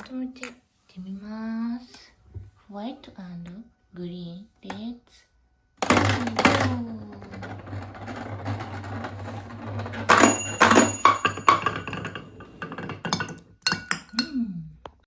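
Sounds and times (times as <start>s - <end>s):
balls clicking on wooden marble run: 5.8s - 12.8s.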